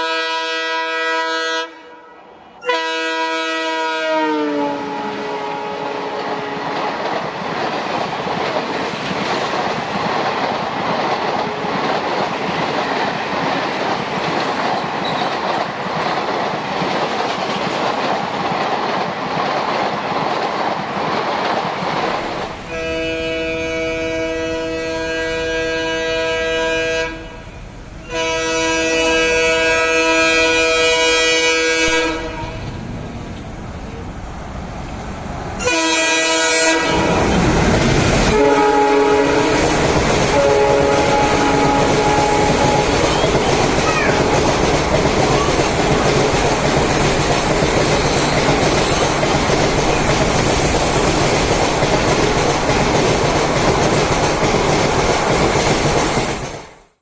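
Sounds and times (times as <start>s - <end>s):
locomotive horn blasts: 0.0s - 6.8s, 22.7s - 32.8s, 35.6s - 37.3s, 38.3s - 39.7s, 40.3s - 43.0s
train rushing and rumbling past: 0.0s - 57.0s.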